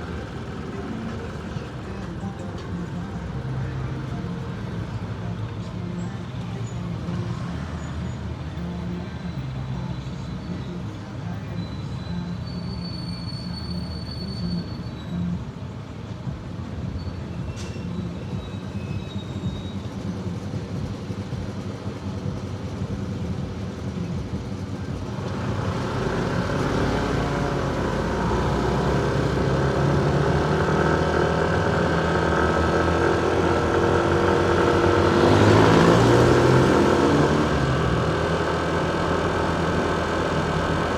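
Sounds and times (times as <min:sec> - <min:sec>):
motorcycle engine running: 0:00.0 - 0:11.0, 0:18.1 - 0:40.9
road noise: 0:00.0 - 0:40.9.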